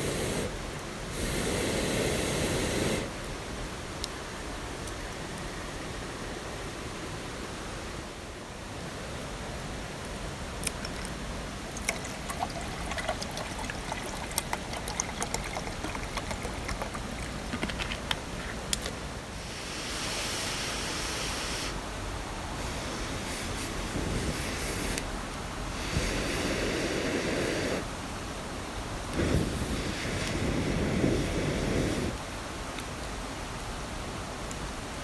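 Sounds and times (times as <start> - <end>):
loud hiss: 0.0 - 3.3, 19.3 - 28.0, 29.1 - 32.2
rushing water: 10.2 - 21.1.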